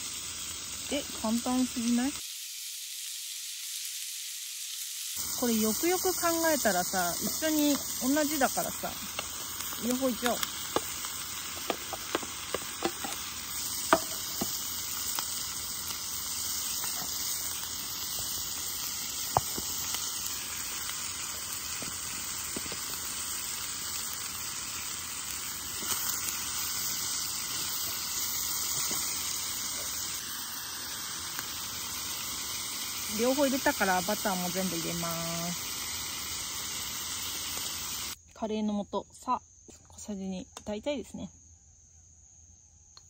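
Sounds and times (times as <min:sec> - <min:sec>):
chicken and onions sizzling: 0:00.0 - 0:38.2
wooden spoon tapping metal: 0:13.9 - 0:14.5.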